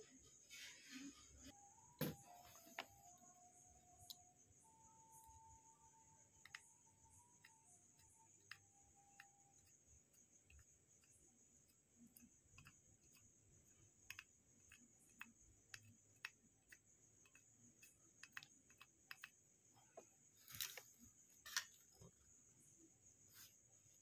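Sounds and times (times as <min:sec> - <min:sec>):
small tools clicking and tapping: 0:06.3 - 0:19.4.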